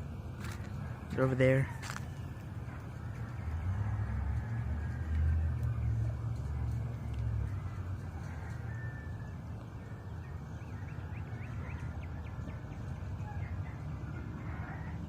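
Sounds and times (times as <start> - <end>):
low outdoor rumble: 0.0 - 15.0
bird chirping: 9.6 - 14.3.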